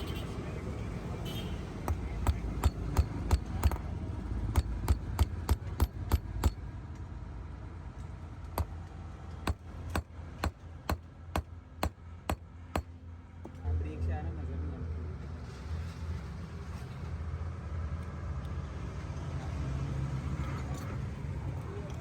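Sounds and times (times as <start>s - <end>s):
hammer striking metal: 1.9s - 3.9s, 4.5s - 6.6s, 9.5s - 12.9s.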